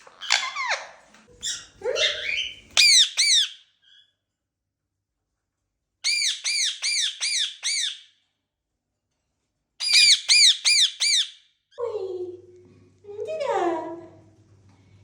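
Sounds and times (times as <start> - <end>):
parrot squawking: 0.0 - 4.0, 6.0 - 8.1, 9.8 - 11.4.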